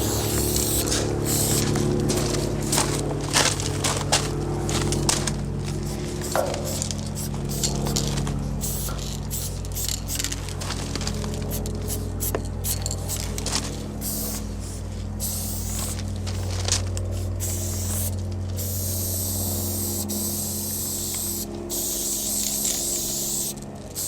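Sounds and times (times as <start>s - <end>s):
spray paint can hissing: 0.0s - 1.7s, 5.8s - 10.3s, 11.6s - 13.3s, 14.0s - 24.0s
steady low hum: 0.0s - 24.0s.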